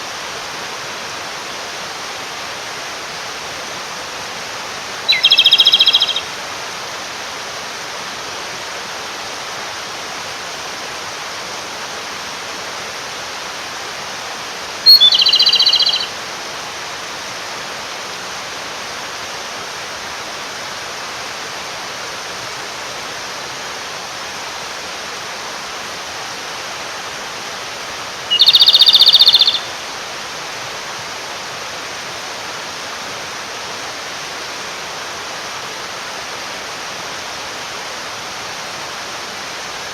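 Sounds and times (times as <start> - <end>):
stream rushing: 0.0 - 39.9
robin singing trills: 5.1 - 6.3, 14.8 - 16.2, 28.3 - 29.8.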